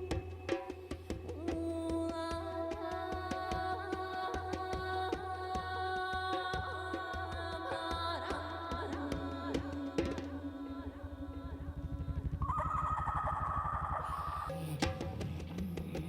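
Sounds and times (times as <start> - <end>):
high wavering vocal tone: 9.2 - 14.9
fast low pulsing: 10.9 - 16.0.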